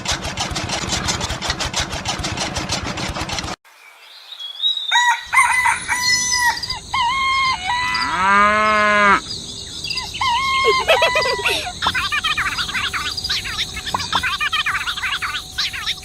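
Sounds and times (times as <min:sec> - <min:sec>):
rooster crowing: 0:04.9 - 0:09.2, 0:10.0 - 0:11.8
chickens clucking: 0:09.8 - 0:16.0.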